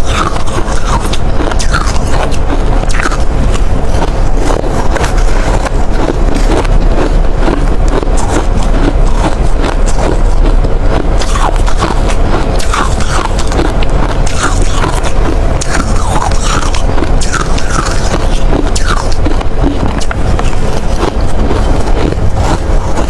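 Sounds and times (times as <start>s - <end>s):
ice being chewed: 0.0s - 23.0s.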